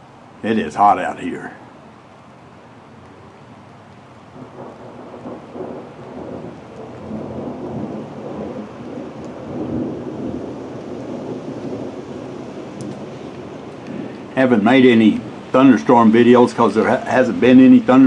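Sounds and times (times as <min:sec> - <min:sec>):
thunder rumbling: 0:04.2 - 0:18.0.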